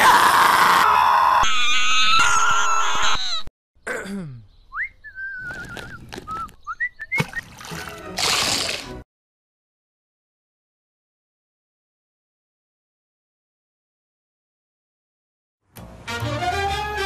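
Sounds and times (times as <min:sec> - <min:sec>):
shrill comic scream: 0:00.0 - 0:03.5
water splash: 0:07.2 - 0:09.0.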